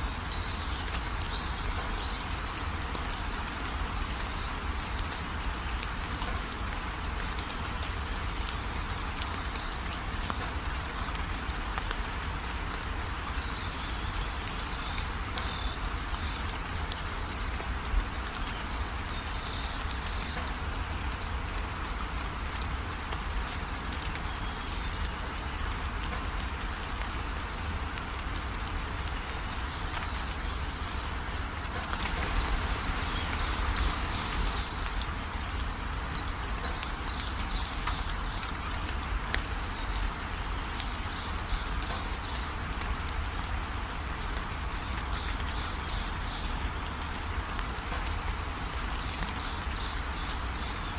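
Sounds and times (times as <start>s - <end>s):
steady rain falling: 0.0s - 50.9s
birds chirping: 29.2s - 38.5s.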